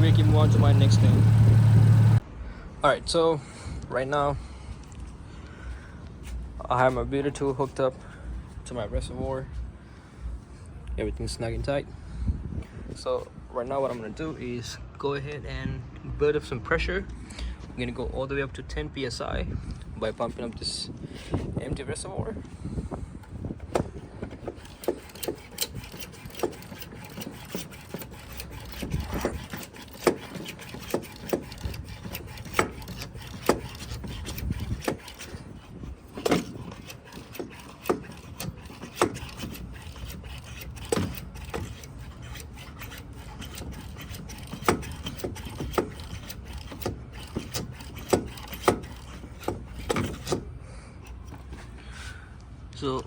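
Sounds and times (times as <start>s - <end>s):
hand pump knocking strokes: 0.0s - 2.2s, 23.2s - 50.5s
pump rubbing sound: 0.0s - 2.2s, 20.0s - 52.1s.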